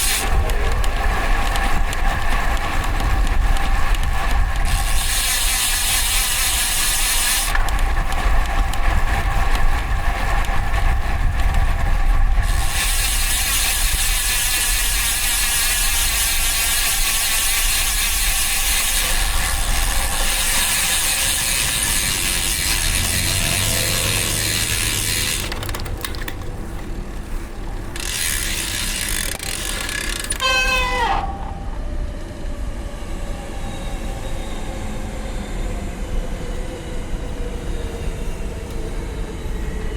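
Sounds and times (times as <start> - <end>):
bicycle freehub ratchet buzzing: 0.0 - 26.8, 27.9 - 31.6
wind and road noise: 0.0 - 39.9.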